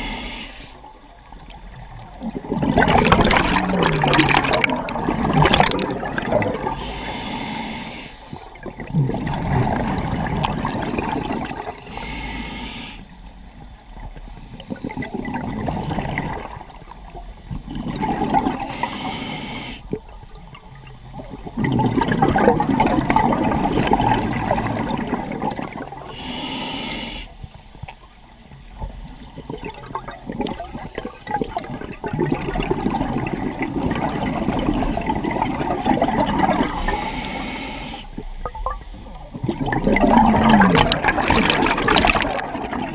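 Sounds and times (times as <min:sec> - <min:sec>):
hissing inhale through regulator: 0:00.0 - 0:01.1, 0:06.7 - 0:08.7, 0:10.6 - 0:13.4, 0:14.1 - 0:15.7, 0:18.4 - 0:20.0, 0:26.0 - 0:28.1, 0:30.4 - 0:31.7, 0:34.0 - 0:35.9, 0:36.6 - 0:39.1
rush of exhaled bubbles: 0:01.4 - 0:07.8, 0:08.4 - 0:11.8, 0:14.6 - 0:18.9, 0:19.9 - 0:26.2, 0:29.1 - 0:37.2, 0:38.2 - 0:42.9.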